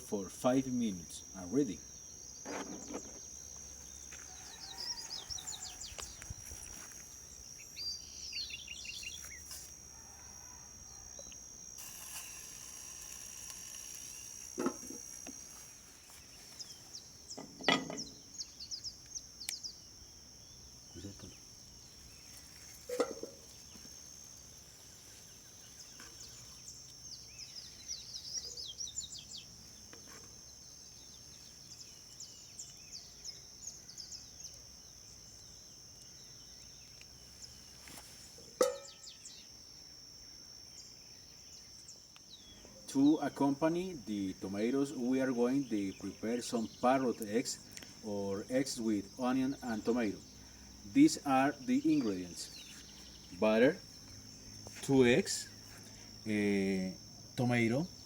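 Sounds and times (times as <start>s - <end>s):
high-pitched insect drone: 0.0s - 58.0s
birds chirping: 7.1s - 9.5s, 42.3s - 56.8s.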